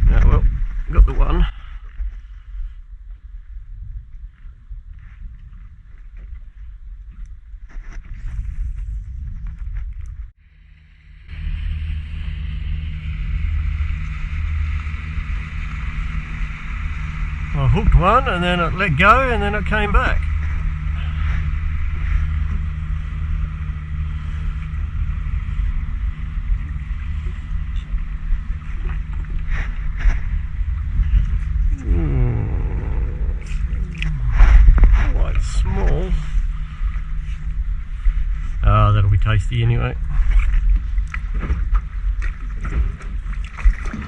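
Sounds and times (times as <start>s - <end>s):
boat motor humming: 10.2s - 44.0s
wind and water hiss: 10.4s - 44.0s.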